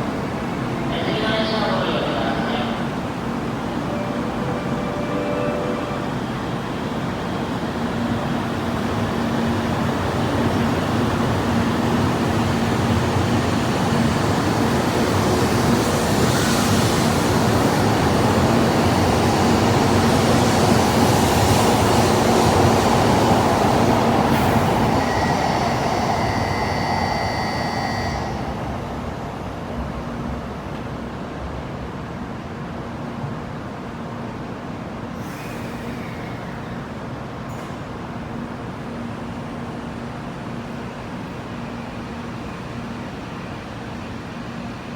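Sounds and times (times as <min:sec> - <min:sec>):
train running noise: 0:00.0 - 0:31.7
brief high whine: 0:03.6 - 0:06.8, 0:24.5 - 0:28.8.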